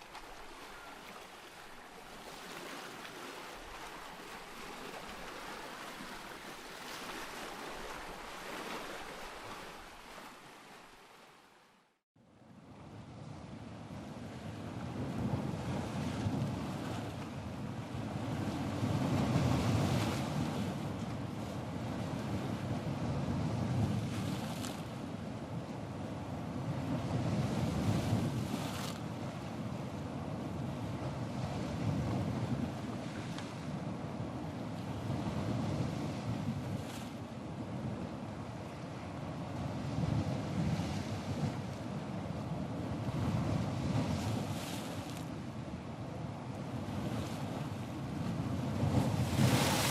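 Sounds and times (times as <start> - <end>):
ocean surf washing: 0.0 - 11.4, 12.8 - 49.9
waves rumbling: 0.0 - 11.4, 12.6 - 49.9
wind noise: 12.8 - 49.9
wave washing in: 46.6 - 49.9.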